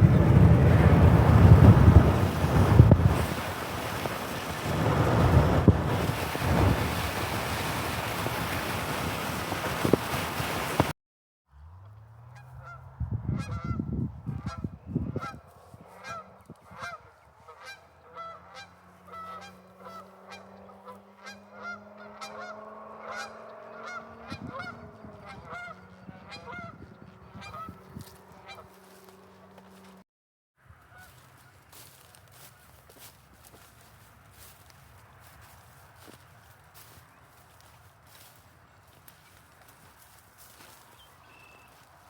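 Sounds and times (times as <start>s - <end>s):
wind rumble on microphone: 0.0s - 10.9s, 12.6s - 17.1s, 23.8s - 29.2s
geese honking: 12.2s - 29.9s, 30.8s - 33.7s.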